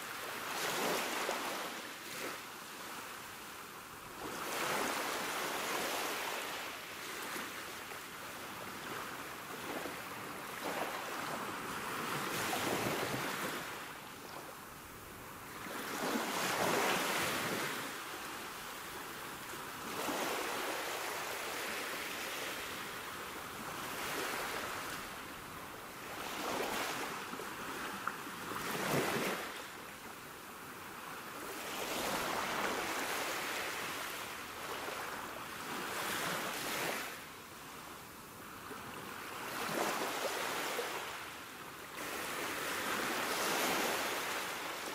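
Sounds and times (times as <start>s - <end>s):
sea waves breaking on shore: 26.0s - 29.7s, 42.0s - 44.9s.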